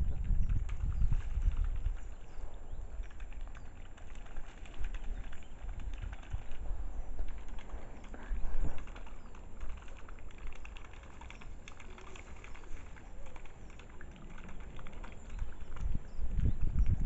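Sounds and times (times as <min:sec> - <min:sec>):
water bird dabbling and slurping: 0:00.0 - 0:17.0
wind rumble on microphone: 0:00.0 - 0:17.0.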